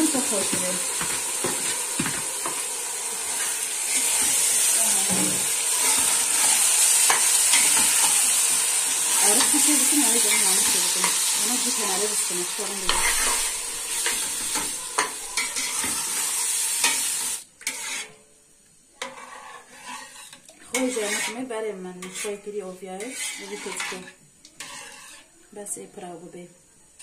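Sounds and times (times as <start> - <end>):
food sizzling in hot oil: 0.0 - 18.3, 18.9 - 25.4
metal spoon scraping a pot: 12.8 - 17.0, 17.6 - 18.2, 19.0 - 25.3.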